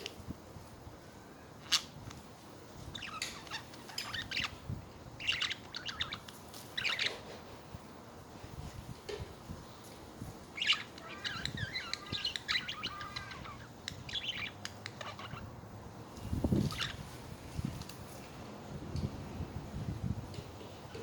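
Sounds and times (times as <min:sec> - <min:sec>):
budgies chirping: 0:02.9 - 0:04.6, 0:05.2 - 0:07.2, 0:10.6 - 0:15.5, 0:16.5 - 0:17.0.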